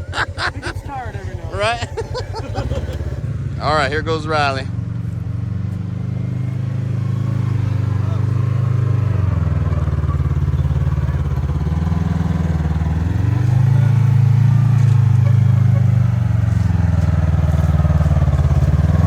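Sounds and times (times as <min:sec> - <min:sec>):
off-road vehicle engine under throttle: 0:00.0 - 0:19.0.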